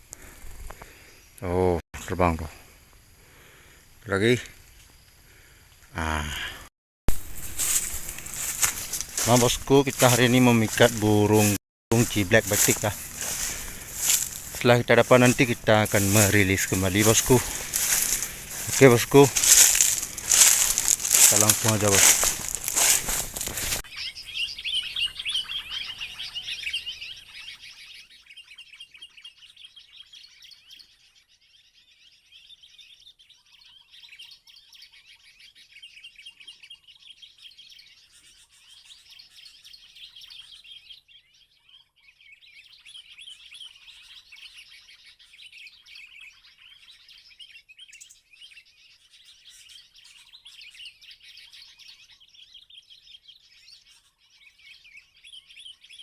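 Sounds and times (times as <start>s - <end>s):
faint lower bird chirp: 23.9s - 56.0s.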